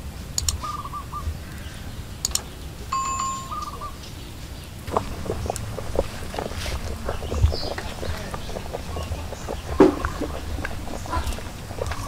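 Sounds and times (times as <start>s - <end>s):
bird chirping: 0.4s - 12.0s
bird whistle: 3.4s - 4.0s.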